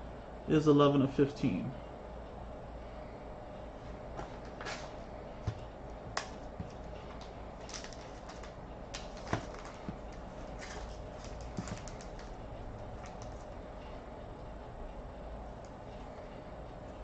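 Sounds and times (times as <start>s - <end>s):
steady low hum: 0.0s - 17.0s
cards and packaging clicking: 6.1s - 13.5s
packaging rustling: 6.2s - 12.4s.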